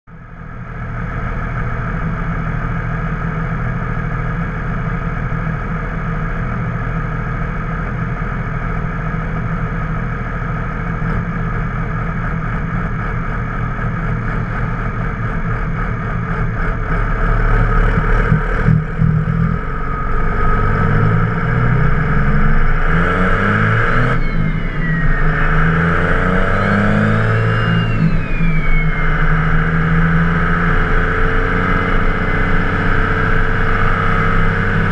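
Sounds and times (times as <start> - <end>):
diesel engine revving: 5.6 - 34.9
turbo whistle: 22.3 - 30.0.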